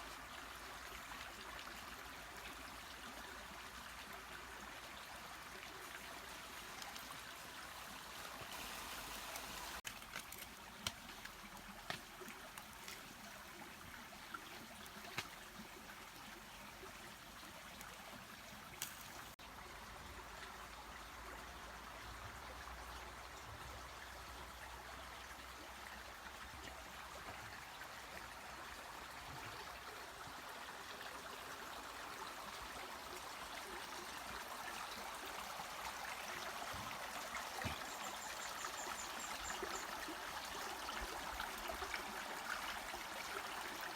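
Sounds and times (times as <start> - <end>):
mountain stream flowing: 0.0 - 43.9.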